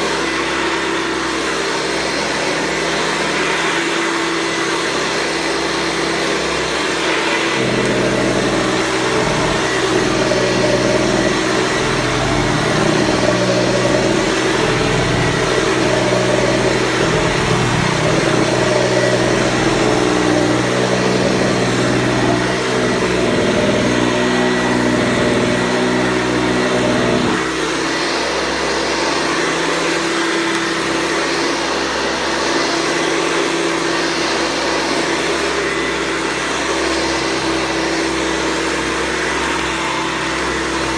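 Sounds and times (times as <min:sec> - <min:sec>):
vacuum cleaner whine: 0:00.0 - 0:40.9
deep uneven hum: 0:06.8 - 0:29.1.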